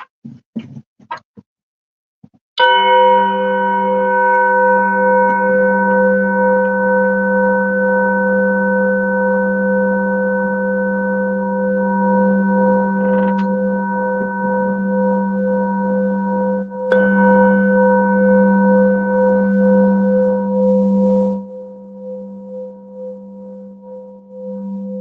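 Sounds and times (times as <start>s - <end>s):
singing bowl ringing: 2.6s - 25.0s.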